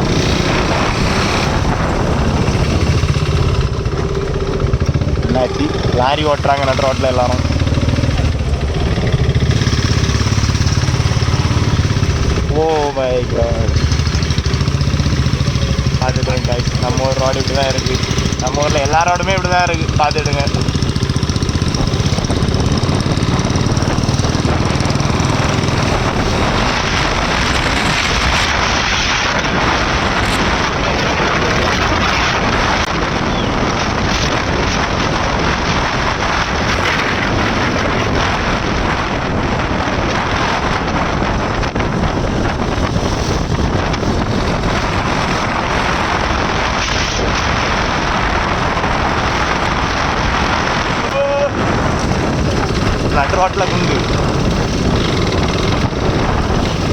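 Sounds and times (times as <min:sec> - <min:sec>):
motorcycle engine running: 0:00.0 - 0:56.9
wind rush on microphone: 0:00.0 - 0:56.9.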